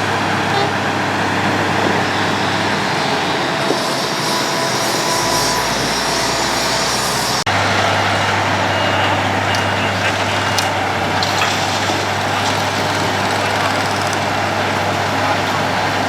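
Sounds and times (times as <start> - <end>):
road planer grinding road surface: 0.0 - 16.0.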